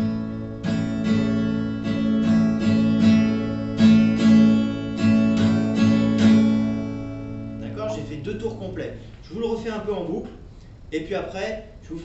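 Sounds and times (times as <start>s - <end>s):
acoustic guitar strumming: 0.0s - 9.5s.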